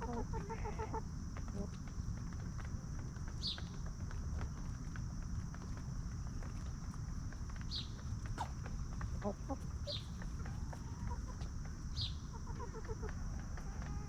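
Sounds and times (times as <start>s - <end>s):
chickens clucking: 0.0s - 2.2s, 3.4s - 14.0s.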